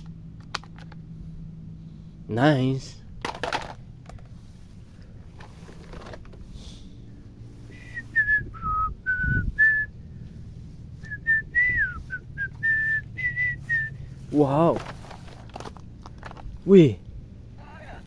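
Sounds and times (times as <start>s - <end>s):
person whistling a tune: 7.7s - 10.0s, 11.0s - 14.0s.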